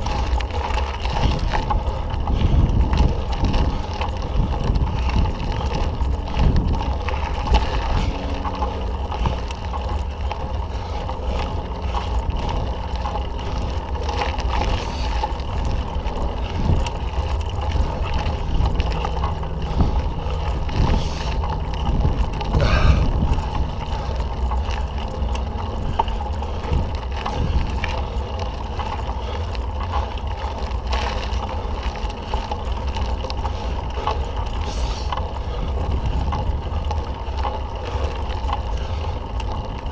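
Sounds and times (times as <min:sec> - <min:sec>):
tyre rumble on dirt: 0:00.0 - 0:29.1
bike rattling over bumps: 0:00.0 - 0:39.9
wind buffeting microphone: 0:00.0 - 0:39.9.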